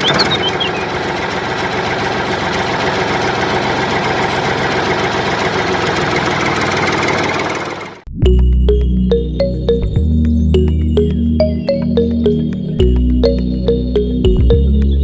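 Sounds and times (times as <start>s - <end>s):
small motor rattling: 0.0s - 8.0s.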